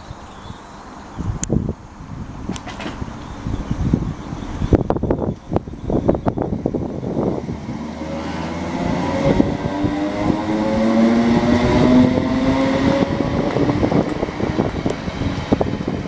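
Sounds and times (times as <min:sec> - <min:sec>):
wheel-on-rail rumble: 0:00.0 - 0:16.0
rail clicks: 0:02.5 - 0:03.1, 0:13.5 - 0:15.7
traction motor whine: 0:03.2 - 0:16.0.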